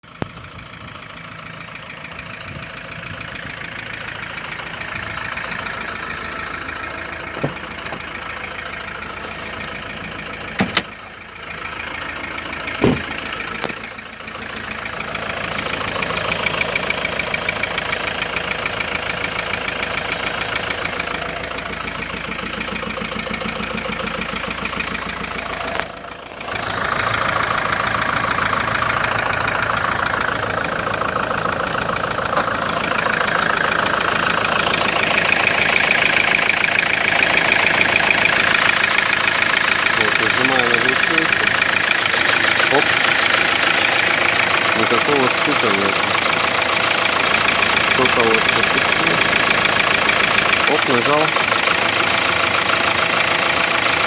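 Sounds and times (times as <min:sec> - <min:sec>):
diesel engine revving: 0:00.0 - 0:54.0
engine knocks: 0:00.0 - 0:54.0.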